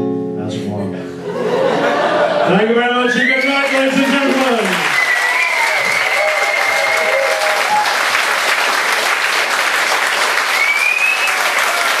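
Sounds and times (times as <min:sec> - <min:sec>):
voices cheering: 0:01.4 - 0:08.7, 0:10.4 - 0:12.0
audience applauding: 0:03.1 - 0:12.0
whistle: 0:04.9 - 0:07.1, 0:10.5 - 0:11.5.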